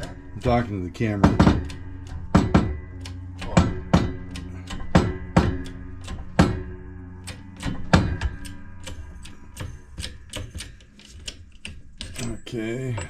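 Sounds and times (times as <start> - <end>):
hydraulic jack pumping: 0.0 - 13.0
metallic clicks and clanks: 0.0 - 13.0.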